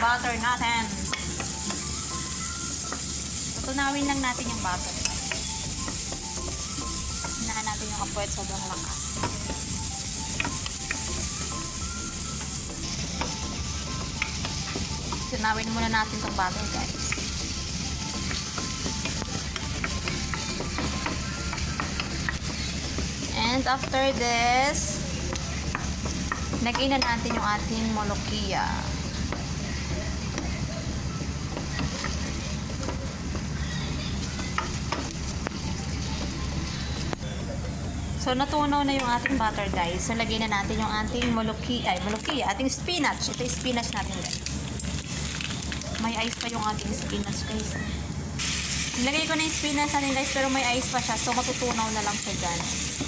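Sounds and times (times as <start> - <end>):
butter sizzling in a pan: 0.0 - 37.1, 42.0 - 53.0
utensil clicking against pan: 2.7 - 24.2, 25.2 - 28.3.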